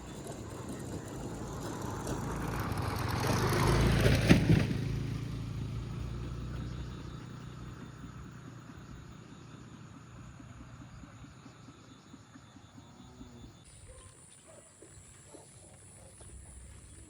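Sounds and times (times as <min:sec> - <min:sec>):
vehicle engine passing by: 0:00.0 - 0:13.6.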